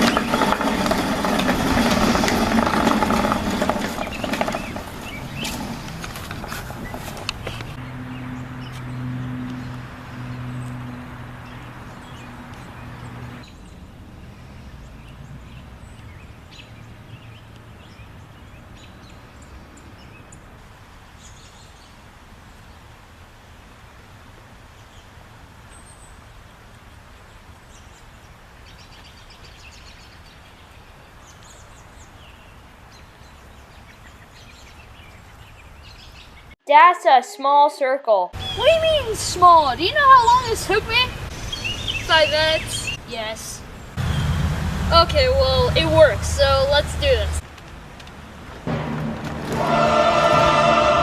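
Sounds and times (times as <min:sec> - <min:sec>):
birds chirping: 0:00.0 - 0:22.0, 0:38.4 - 0:49.0
low hum: 0:48.6 - 0:51.0.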